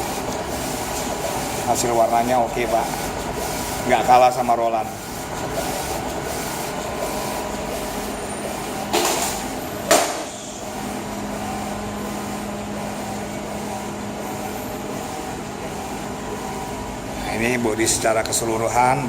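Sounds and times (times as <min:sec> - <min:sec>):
printer mechanical hum: 0:00.0 - 0:19.0
sharp knock: 0:09.9 - 0:10.3.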